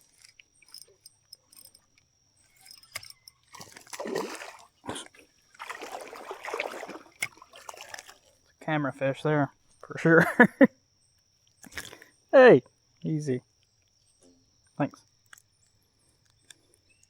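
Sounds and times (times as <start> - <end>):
water splashing: 3.6 - 8.4.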